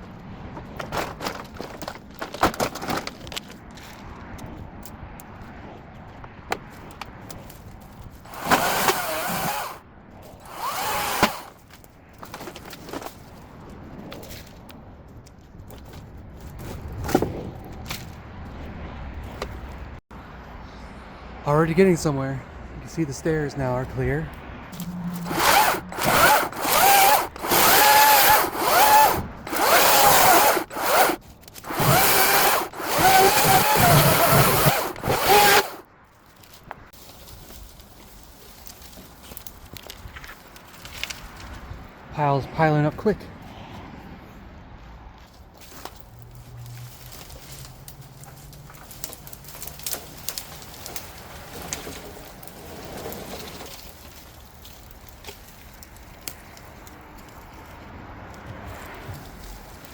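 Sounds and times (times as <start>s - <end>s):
brush crackling: 6.6s - 13.8s, 22.9s - 41.7s, 45.4s - 59.9s
electric chainsaw whine: 8.3s - 9.8s, 10.4s - 11.5s, 24.8s - 35.8s.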